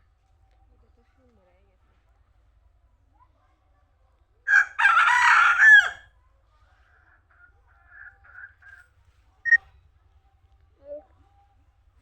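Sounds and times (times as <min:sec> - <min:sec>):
rooster crowing: 0:04.5 - 0:06.0.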